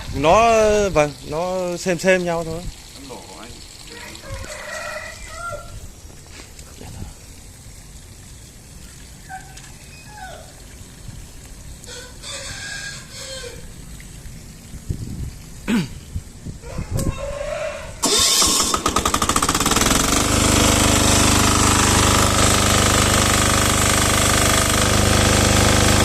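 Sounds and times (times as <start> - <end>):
rooster crowing: 3.9 - 5.8, 11.9 - 13.7, 16.6 - 18.3.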